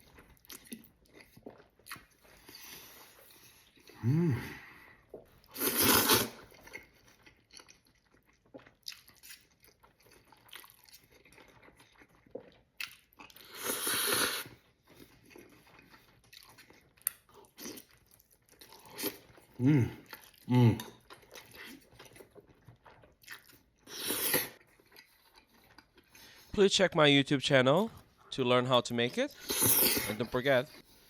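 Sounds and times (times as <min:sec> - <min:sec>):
soft chewing: 0:00.0 - 0:26.6
noodle slurping: 0:01.3 - 0:06.9, 0:13.3 - 0:14.7, 0:18.7 - 0:26.4, 0:29.4 - 0:30.4.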